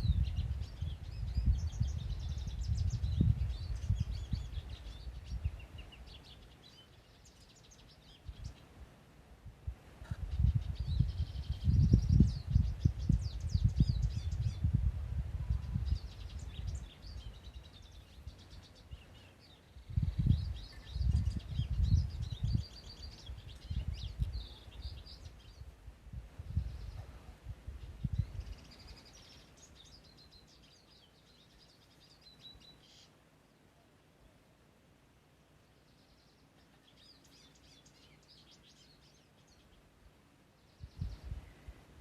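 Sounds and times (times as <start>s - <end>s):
wind buffeting microphone: 0.0s - 6.4s, 8.2s - 8.6s, 9.4s - 19.1s, 19.8s - 30.4s, 40.8s - 42.0s
birds chirping and trilling: 0.0s - 8.8s, 10.0s - 14.8s, 15.4s - 25.8s, 26.4s - 34.4s, 35.4s - 41.8s.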